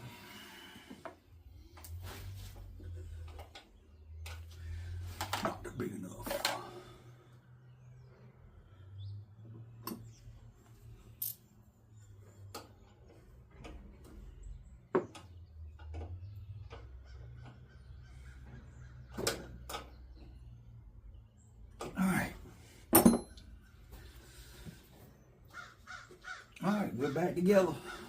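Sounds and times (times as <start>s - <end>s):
metal tools clinking: 11.2s - 11.4s, 22.9s - 23.5s.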